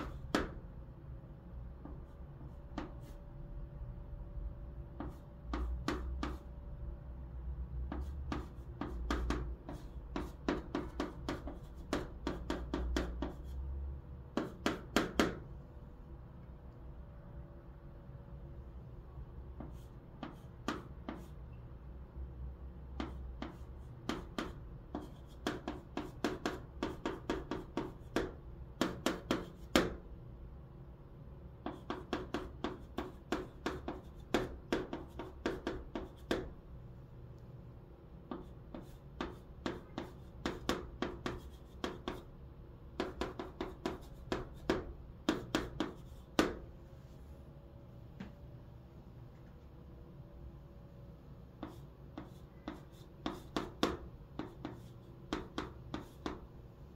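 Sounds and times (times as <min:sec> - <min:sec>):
chalk tapping and scratching: 0:00.0 - 0:00.6, 0:01.8 - 0:03.4, 0:05.0 - 0:06.5, 0:07.8 - 0:13.7, 0:14.3 - 0:15.4, 0:19.5 - 0:21.5, 0:23.0 - 0:30.0, 0:31.6 - 0:36.6, 0:38.2 - 0:42.3, 0:42.9 - 0:46.7, 0:51.5 - 0:56.5.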